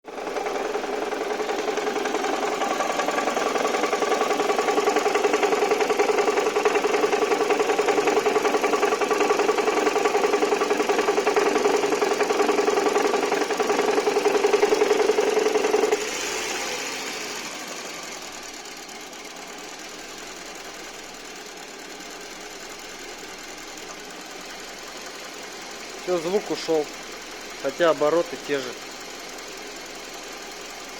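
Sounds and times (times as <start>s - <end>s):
car engine running: 0.0s - 30.9s
loud rapid engine knock: 0.1s - 19.5s.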